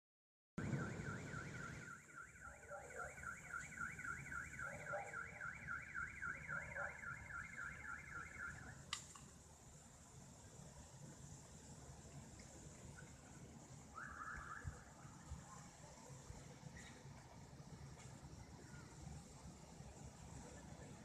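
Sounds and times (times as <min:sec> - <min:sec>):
car alarm siren warbling: 0:00.6 - 0:08.8, 0:13.9 - 0:15.0.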